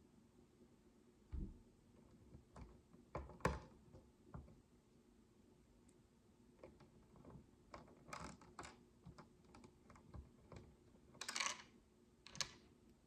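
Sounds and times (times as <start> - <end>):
plastic bricks clicking: 11.2 - 11.7, 12.3 - 12.6.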